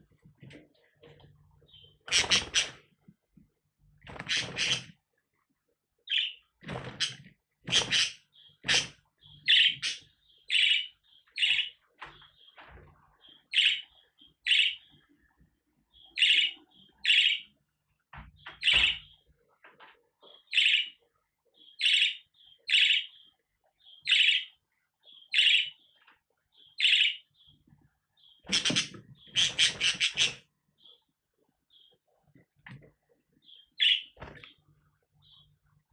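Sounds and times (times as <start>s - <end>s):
budgerigar chirping: 7.7s - 11.8s, 13.5s - 14.9s, 23.9s - 24.5s, 25.1s - 25.9s, 26.6s - 27.5s, 28.2s - 31.0s.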